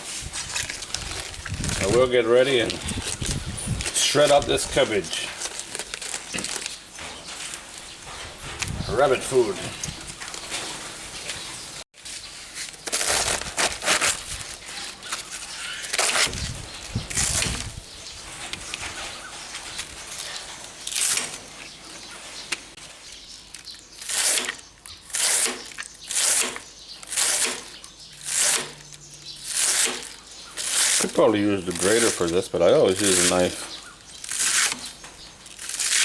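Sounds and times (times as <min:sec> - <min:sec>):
knife slicing cabbage: 0:12.5 - 0:17.8, 0:24.0 - 0:36.0.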